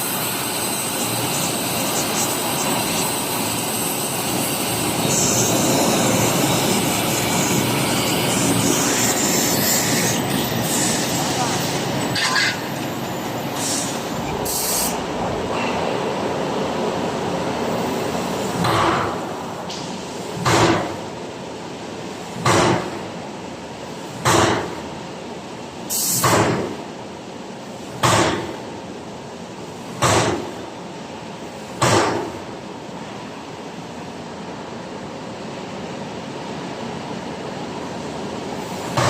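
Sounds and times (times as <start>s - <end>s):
steady machine hum: 0.0s - 22.4s.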